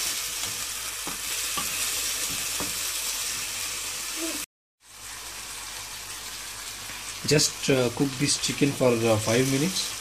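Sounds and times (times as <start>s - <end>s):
chicken sizzling in oil: 0.0s - 10.0s
wooden spatula knocking on pan: 0.4s - 2.8s.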